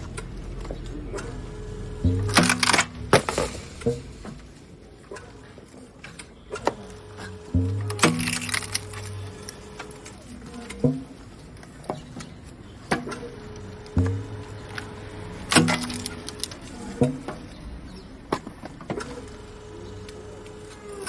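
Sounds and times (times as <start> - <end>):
steady machine hum: 0.0 - 5.2, 6.4 - 11.3, 12.6 - 17.6, 18.9 - 21.0
logs cracking and splitting: 2.3 - 3.5, 7.8 - 9.6, 15.5 - 16.7.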